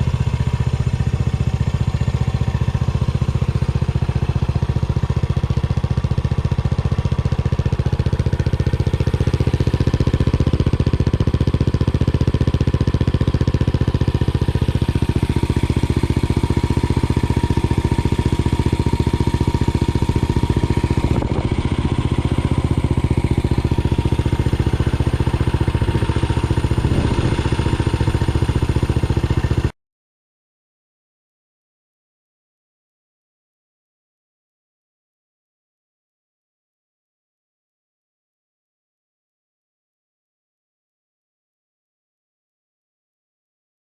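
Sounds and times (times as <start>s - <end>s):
motorcycle engine running: 0.0s - 29.7s.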